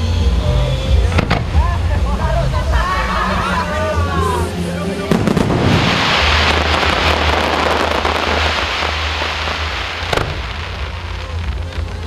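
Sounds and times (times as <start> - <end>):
fireworks crackling: 0.0 - 12.0
firework bang: 1.1 - 1.9, 5.1 - 12.0.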